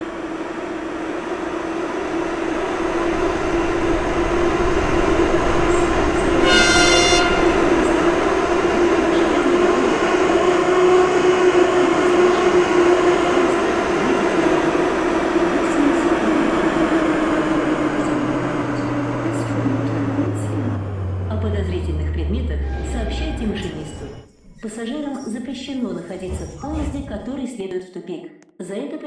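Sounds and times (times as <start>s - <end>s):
metro train running: 0.0s - 27.3s
high-pitched train horn toot: 6.3s - 8.0s.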